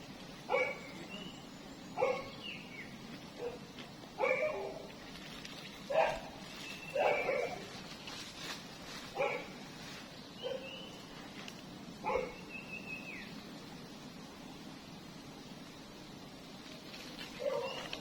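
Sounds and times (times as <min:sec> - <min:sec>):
dog barking: 0:00.5 - 0:00.9, 0:02.0 - 0:02.3, 0:03.4 - 0:03.6, 0:04.2 - 0:04.8, 0:05.9 - 0:06.3, 0:06.9 - 0:07.7, 0:09.2 - 0:09.5, 0:10.4 - 0:10.7, 0:12.0 - 0:12.4, 0:17.4 - 0:17.8.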